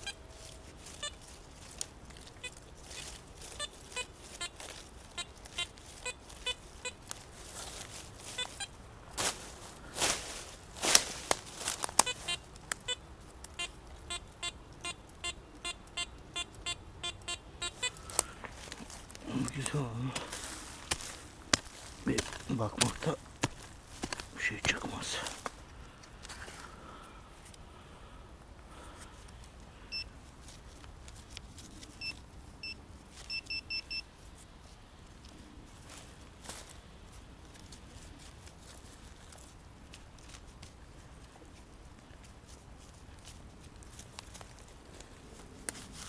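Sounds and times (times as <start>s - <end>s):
metal detector beeping: 0.0s - 1.2s, 2.4s - 7.0s, 8.3s - 8.8s, 12.0s - 13.0s, 13.6s - 18.4s, 29.9s - 30.1s, 32.0s - 34.1s.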